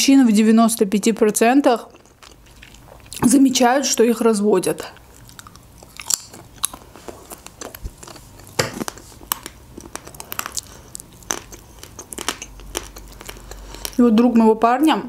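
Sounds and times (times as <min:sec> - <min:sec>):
person chewing food: 0:01.8 - 0:03.3, 0:04.9 - 0:14.0.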